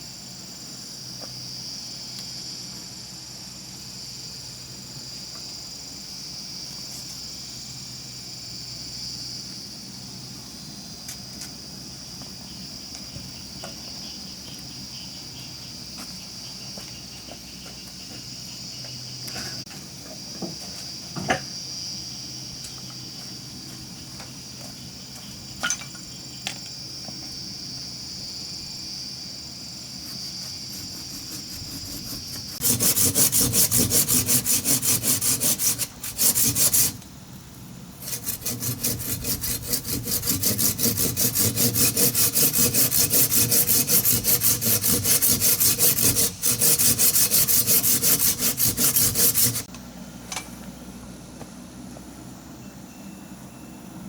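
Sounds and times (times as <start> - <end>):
high insect buzzing: 29.6 - 37.1, 38.0 - 49.7
hand saw cutting wood: 30.0 - 37.0, 38.0 - 49.7.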